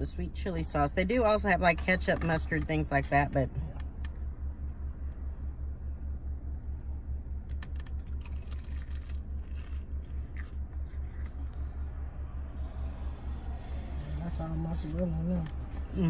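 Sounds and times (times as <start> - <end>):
pulsing low hum: 0.0 - 16.0
biting into food: 7.6 - 11.8.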